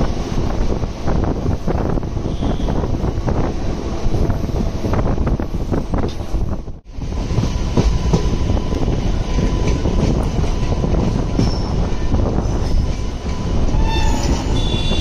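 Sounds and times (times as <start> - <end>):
train rumbling over rails: 0.0 - 15.0
rail joint clicks: 2.7 - 6.6, 7.3 - 15.0.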